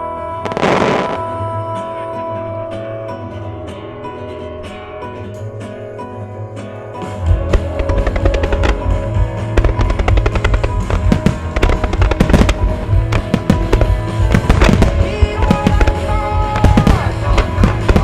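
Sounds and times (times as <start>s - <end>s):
music: 0.0s - 18.0s
fireworks bursts and bangs: 7.0s - 18.0s.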